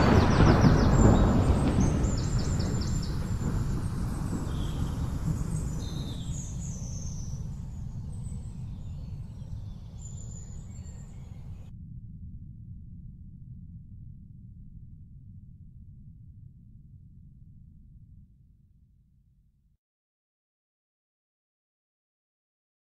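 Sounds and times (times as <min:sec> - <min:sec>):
birds chirping: 0:00.0 - 0:11.7
thunder rumbling: 0:00.0 - 0:11.7.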